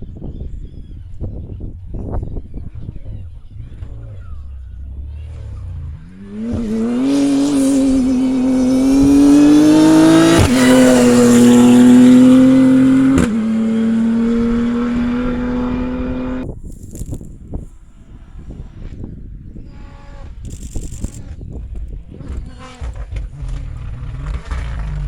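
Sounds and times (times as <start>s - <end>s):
low engine rumble: 0.0s - 16.5s, 21.1s - 25.0s
car engine accelerating hard: 2.8s - 16.4s, 22.2s - 25.0s.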